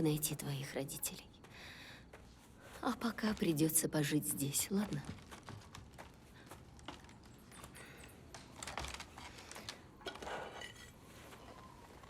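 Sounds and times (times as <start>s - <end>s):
faint clicks and rustles: 4.5s - 12.0s.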